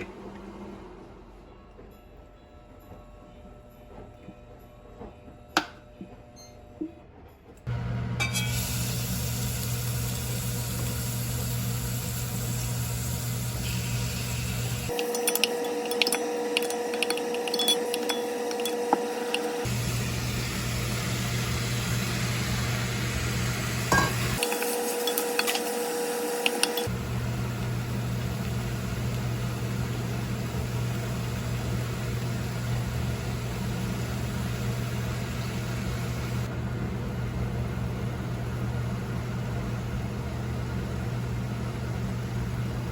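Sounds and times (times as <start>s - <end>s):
utensils clinking against pots: 8.2s - 8.7s, 14.9s - 19.7s, 23.9s - 26.9s.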